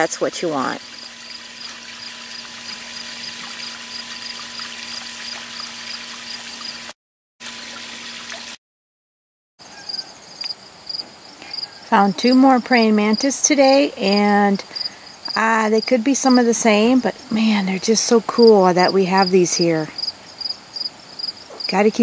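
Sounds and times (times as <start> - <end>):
insects chirping: 0.8 - 6.9, 9.6 - 11.9, 13.1 - 17.4, 20.0 - 21.7.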